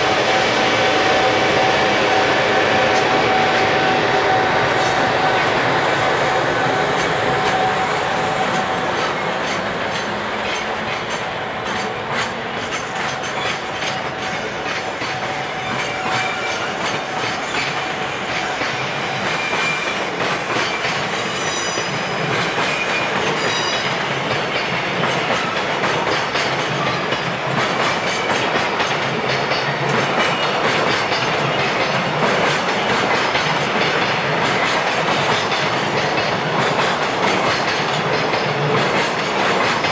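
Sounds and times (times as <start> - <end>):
train wheels clicking over rail joints: 0.0 - 39.9
faint high wheel squeals: 12.8 - 25.6.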